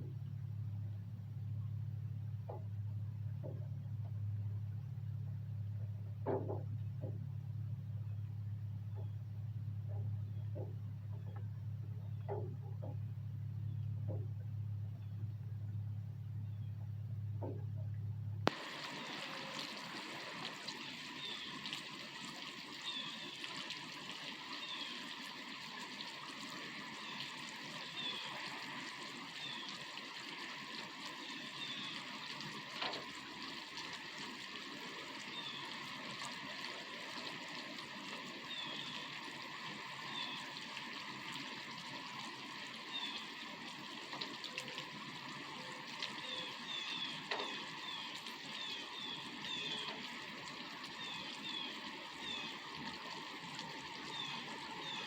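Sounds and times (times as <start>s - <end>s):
water trickling and dripping: 0.0s - 55.0s
sharp drip taps: 9.8s - 13.0s, 45.9s - 55.0s
steady rain: 18.4s - 55.0s.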